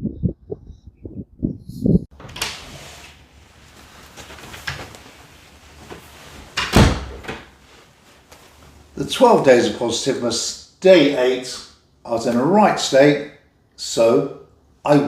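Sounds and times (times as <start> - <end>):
rustling: 2.2 - 9.0.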